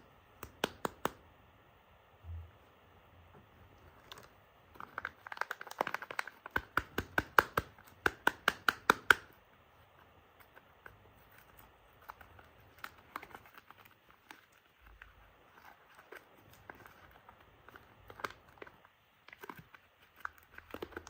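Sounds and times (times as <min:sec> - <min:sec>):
packaging crinkling: 0:03.8 - 0:09.2, 0:10.4 - 0:21.0.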